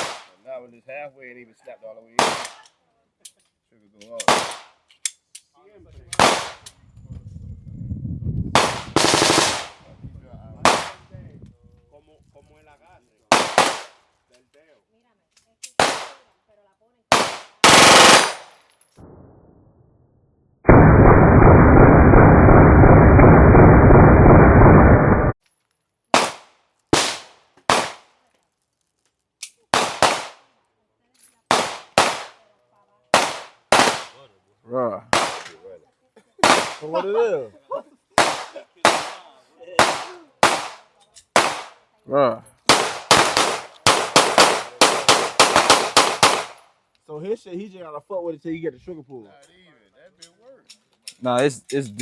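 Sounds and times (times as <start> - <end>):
rapid gunfire: 0.0 - 0.3, 4.3 - 4.7, 6.2 - 6.6, 8.6 - 9.8, 13.3 - 14.0, 17.1 - 18.5, 29.8 - 30.4, 31.5 - 32.4, 33.2 - 34.2, 35.2 - 35.4, 36.4 - 36.8, 38.2 - 39.2, 39.8 - 40.8, 41.4 - 41.8, 42.7 - 46.6
gunshots: 0.0 - 0.4, 2.2 - 2.6, 4.2 - 4.8, 6.2 - 6.6, 8.6 - 9.8, 10.6 - 11.0, 13.3 - 14.0, 15.8 - 16.2, 17.1 - 18.5, 20.7 - 25.3, 26.2 - 28.1, 29.8 - 30.4, 31.5 - 32.4, 33.2 - 34.2, 35.1 - 35.6, 36.4 - 36.9, 38.2 - 40.8, 41.4 - 41.8, 42.7 - 46.6
low rumble: 19.0 - 25.4
loud rushing noise: 20.7 - 25.4.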